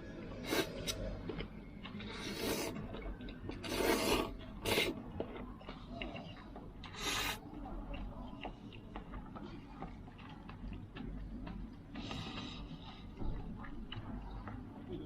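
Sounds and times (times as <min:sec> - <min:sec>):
person slurping noodles: 0:00.4 - 0:01.0, 0:02.0 - 0:02.8, 0:03.6 - 0:05.0, 0:06.9 - 0:07.4.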